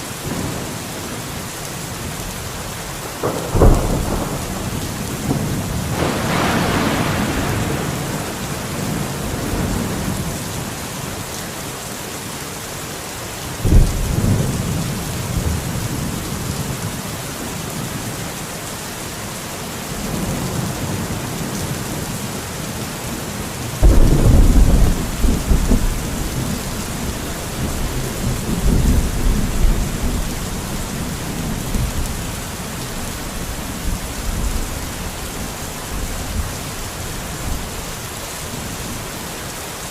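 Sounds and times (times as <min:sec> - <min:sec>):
steady rain: 0:00.0 - 0:39.9
thunder claps and rumbling: 0:03.0 - 0:10.8, 0:13.6 - 0:17.0, 0:23.8 - 0:37.9.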